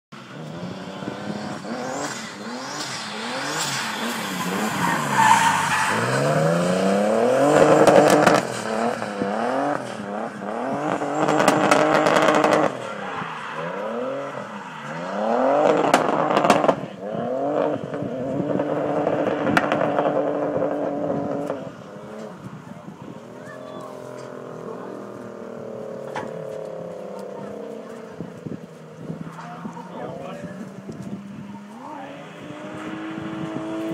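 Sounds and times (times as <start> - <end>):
car engine revving hard: 0.3 - 22.3, 23.2 - 33.9.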